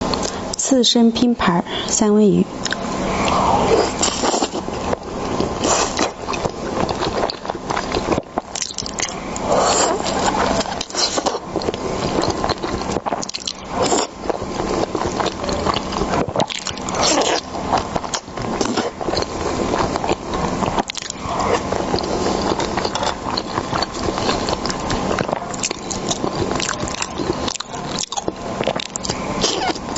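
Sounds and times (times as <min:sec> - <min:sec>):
mouth clicks and smacks: 0:02.6 - 0:03.4
wet biting and chewing: 0:02.6 - 0:29.9.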